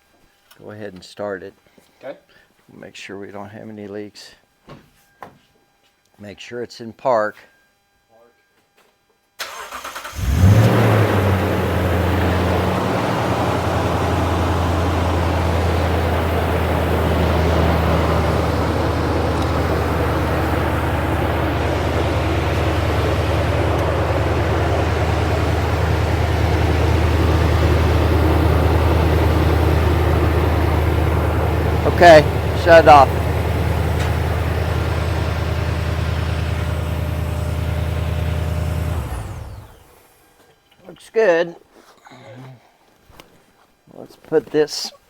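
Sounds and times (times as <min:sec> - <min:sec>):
starter cranking engine: 0:09.4 - 0:37.1
car engine idling: 0:09.5 - 0:39.8.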